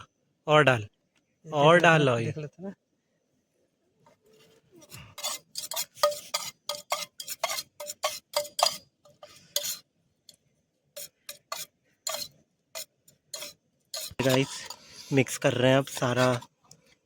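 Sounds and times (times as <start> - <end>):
spoon scraping and clinking in bowl: 4.8 - 9.8, 11.0 - 16.5.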